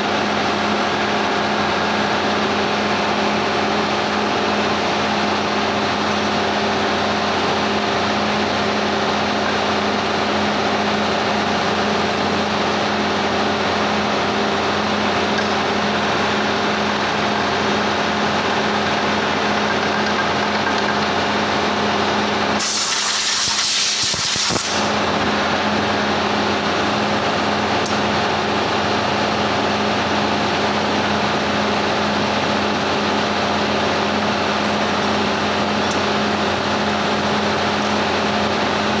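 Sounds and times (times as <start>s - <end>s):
sharp hiss: 22.6s - 24.9s.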